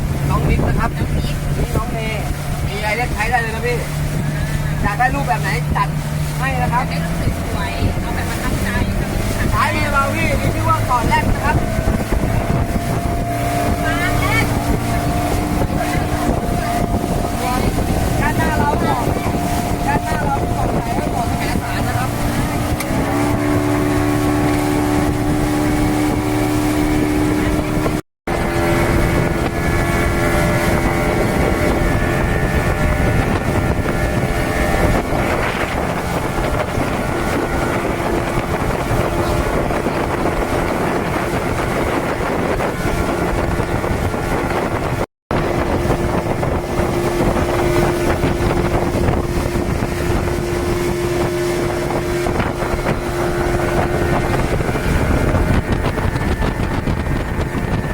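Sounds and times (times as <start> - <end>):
rushing water: 0.0 - 57.9
speedboat engine running: 0.0 - 57.9
wind buffeting microphone: 0.0 - 57.9.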